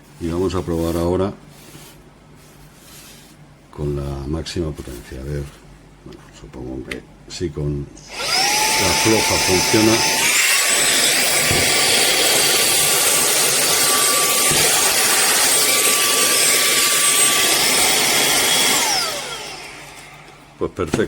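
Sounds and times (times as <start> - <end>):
handheld vacuum cleaner whine: 8.0 - 20.4.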